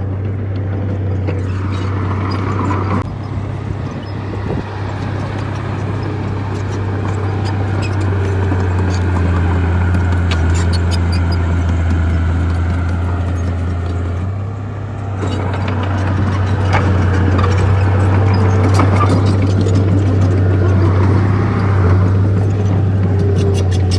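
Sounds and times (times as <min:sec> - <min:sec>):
bulldozer diesel engine droning: 0:00.0 - 0:23.9.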